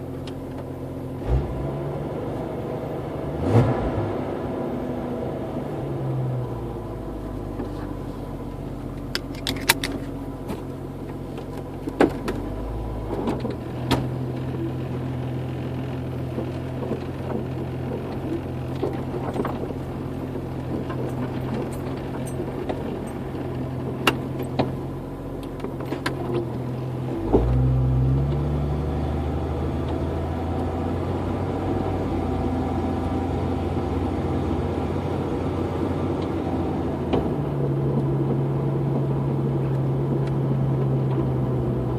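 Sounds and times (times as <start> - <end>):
car exhaust drone: 0.0 - 41.9
light clicks and rattles: 8.9 - 10.7.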